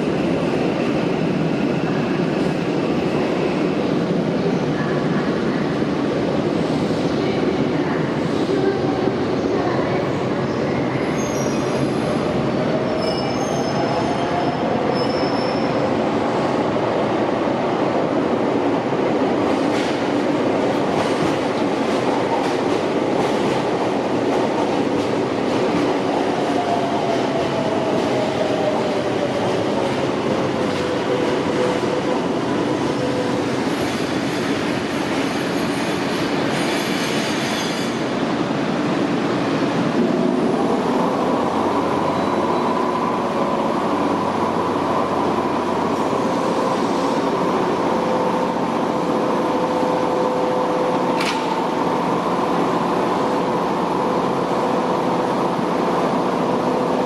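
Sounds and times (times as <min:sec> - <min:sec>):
train wheel squeal: 0:11.1 - 0:11.8, 0:12.8 - 0:15.8, 0:35.6 - 0:38.0, 0:42.1 - 0:42.9.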